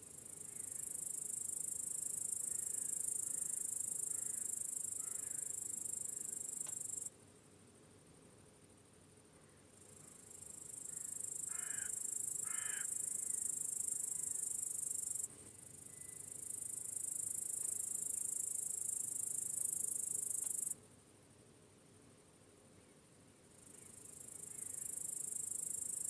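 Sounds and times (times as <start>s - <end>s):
crickets trilling: 0.1s - 7.1s, 9.8s - 20.8s, 23.5s - 26.0s.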